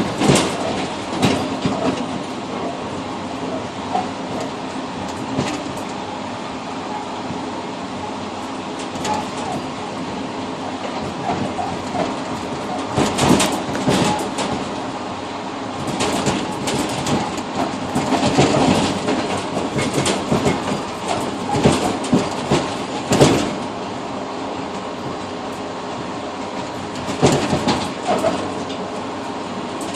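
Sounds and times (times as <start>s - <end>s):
train wheels clacking: 0.0s - 6.1s, 8.8s - 15.0s, 15.8s - 23.8s, 26.5s - 29.9s
train rolling rumble: 0.0s - 29.9s.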